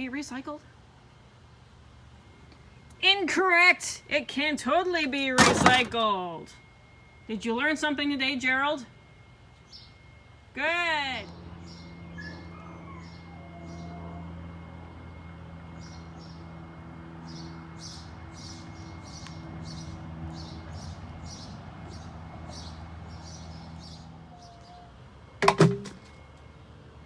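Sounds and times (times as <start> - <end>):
low hum: 4.0 - 27.0
bird chirping: 9.6 - 10.3, 11.2 - 16.6, 17.2 - 25.0
sharp knocks: 25.4 - 26.0.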